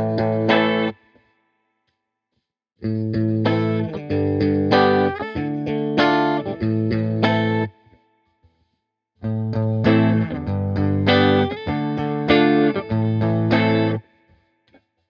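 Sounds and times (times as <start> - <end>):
clean electric guitar chords: 0.0 - 1.0, 2.9 - 7.7, 9.2 - 14.0.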